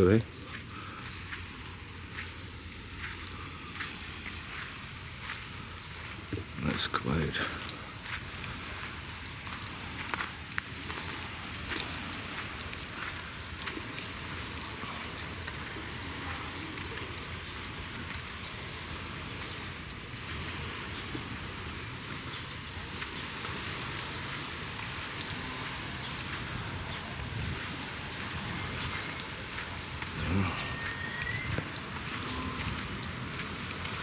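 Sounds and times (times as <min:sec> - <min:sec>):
outdoor ambient noise: 0:00.0 - 0:34.0
faint high chirps: 0:30.2 - 0:31.7.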